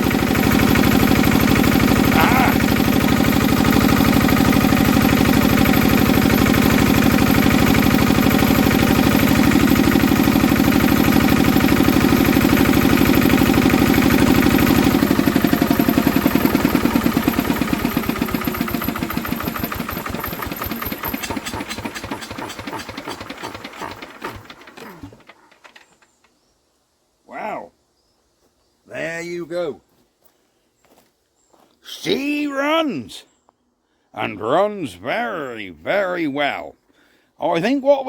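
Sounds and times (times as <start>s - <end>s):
diesel engine running: 0.0s - 25.4s
engine running down to a stop: 0.0s - 26.4s.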